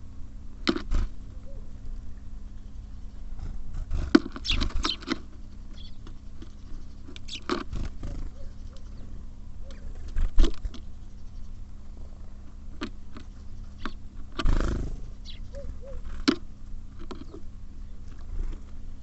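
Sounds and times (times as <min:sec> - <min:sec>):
steady low hum: 0:00.0 - 0:19.0
birds pecking at feeder: 0:00.6 - 0:19.0
high bird chirps: 0:04.4 - 0:05.1, 0:05.7 - 0:06.0, 0:13.5 - 0:14.0, 0:15.2 - 0:16.0.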